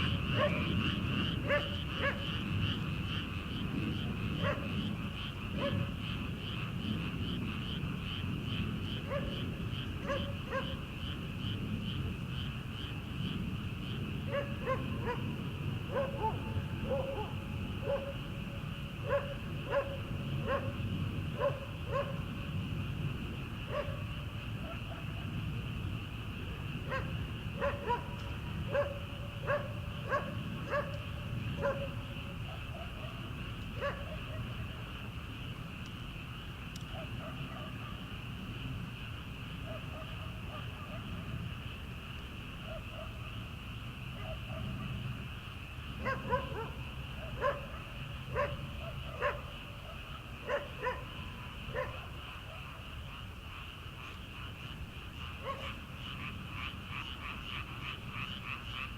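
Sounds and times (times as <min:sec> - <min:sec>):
frogs calling: 0:00.0 - 0:58.9
distant dog barking: 0:00.1 - 0:02.4, 0:04.3 - 0:04.9, 0:05.5 - 0:06.0, 0:09.0 - 0:10.9, 0:14.2 - 0:22.4, 0:23.6 - 0:25.4, 0:26.5 - 0:34.8, 0:36.9 - 0:38.1, 0:39.6 - 0:41.4, 0:42.6 - 0:43.2, 0:44.1 - 0:45.1, 0:46.0 - 0:52.9, 0:55.3 - 0:56.3.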